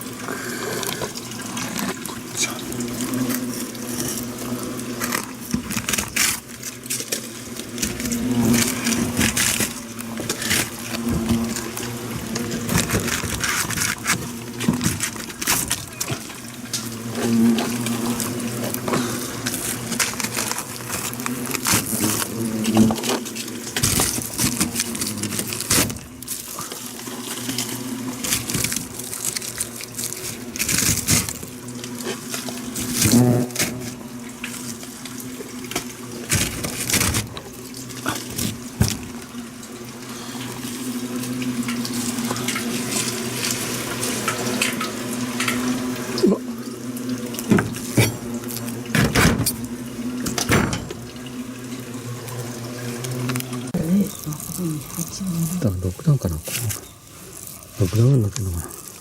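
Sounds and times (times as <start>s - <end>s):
hornets buzzing: 0.0s - 59.0s.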